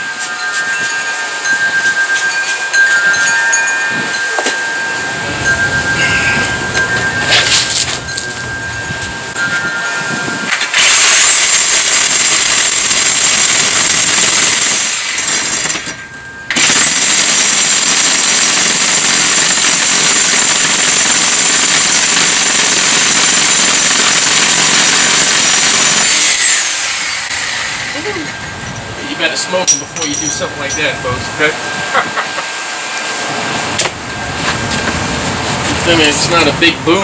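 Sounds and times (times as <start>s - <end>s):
reciprocating saw cutting metal: 4.2s - 35.1s.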